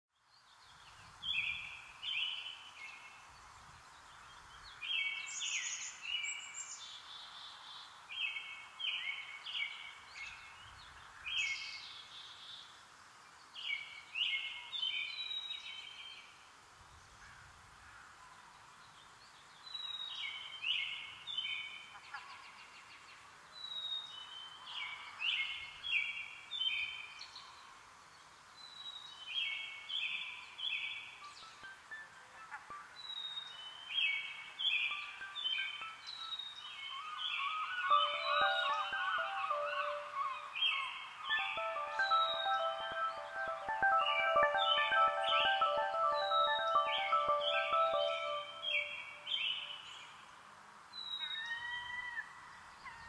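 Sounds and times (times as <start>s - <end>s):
songbird chirping: 0.2s - 17.4s, 18.1s - 53.0s
steady background hiss: 0.3s - 53.0s.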